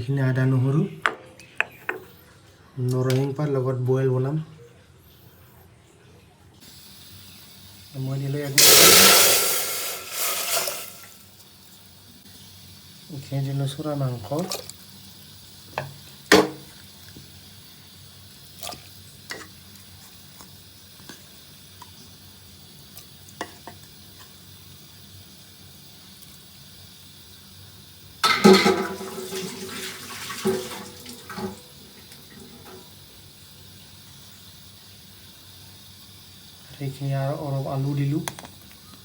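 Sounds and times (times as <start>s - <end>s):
knocks in metal pot: 16.3s - 16.7s, 28.2s - 29.2s
clatter in metal pot: 28.2s - 31.6s.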